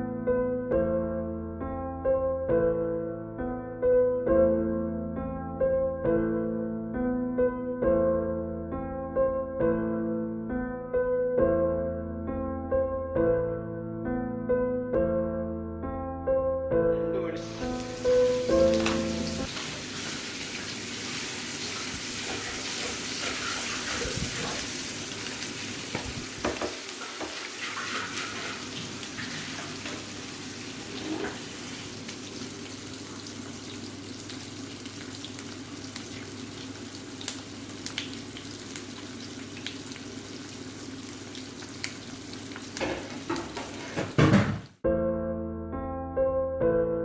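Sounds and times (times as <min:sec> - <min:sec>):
roe sizzling in hot oil: 0:17.2 - 0:44.2
knocks: 0:26.0 - 0:27.4.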